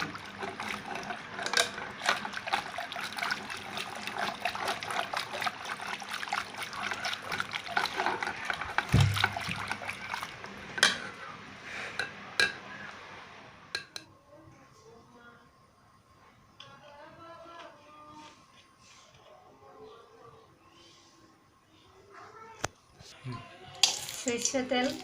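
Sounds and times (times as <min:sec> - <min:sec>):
wet squelching of mashed food: 0:00.0 - 0:10.7
wooden masher knocking on pot: 0:07.8 - 0:09.7.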